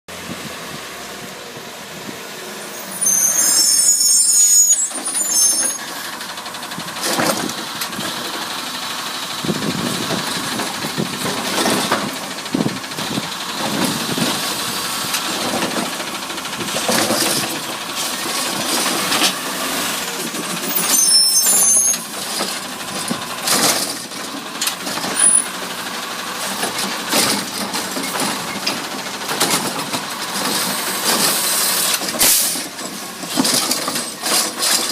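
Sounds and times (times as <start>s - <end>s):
garbage truck running: 0.1s - 34.9s
knocks and clanks: 6.7s - 8.4s, 9.7s - 14.5s, 15.1s - 19.4s, 26.5s - 34.9s.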